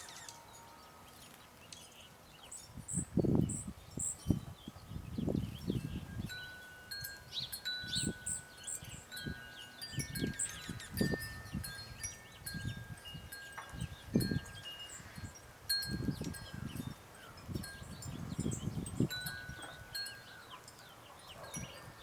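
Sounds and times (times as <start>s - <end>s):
high bird chirps: 0.0s - 12.8s
wind chimes ringing: 0.0s - 22.0s.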